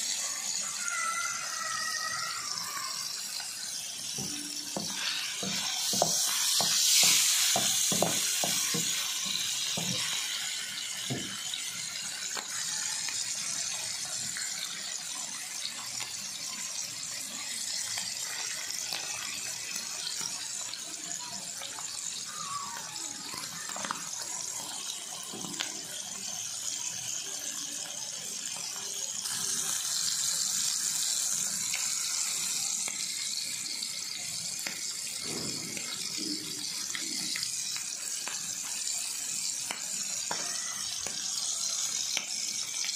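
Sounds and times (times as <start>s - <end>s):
meat sizzling in oil: 0.0s - 42.9s
spoon knocking on pan: 4.2s - 9.0s.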